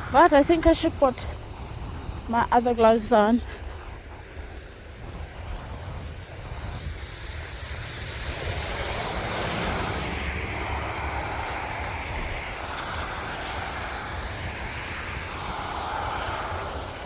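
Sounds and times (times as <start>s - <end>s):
blizzard wind rushing: 0.0s - 17.0s
wind buffeting microphone: 0.0s - 17.0s.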